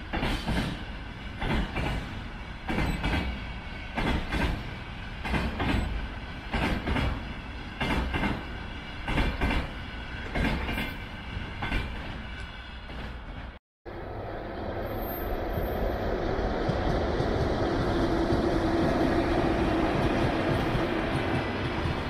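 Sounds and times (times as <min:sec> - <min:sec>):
train low rumble: 0:00.0 - 0:22.0
wheels clacking over rail joints: 0:00.1 - 0:11.0.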